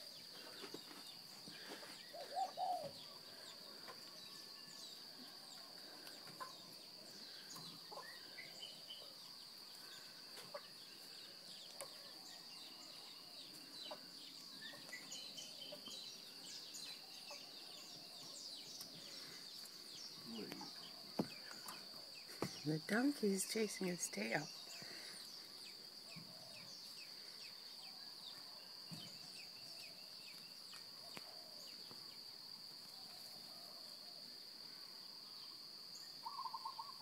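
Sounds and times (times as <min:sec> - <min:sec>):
bird chirps and calls: 0:36.2 - 0:37.0.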